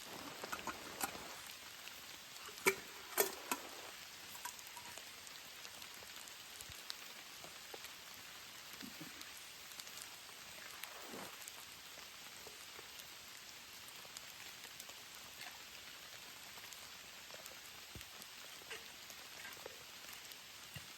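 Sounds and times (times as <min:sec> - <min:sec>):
steady rain hiss: 0:00.0 - 0:20.9.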